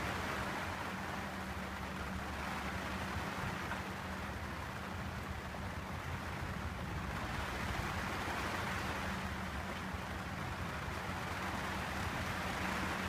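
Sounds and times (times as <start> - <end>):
rain on canvas and plastic: 0.0 - 13.0.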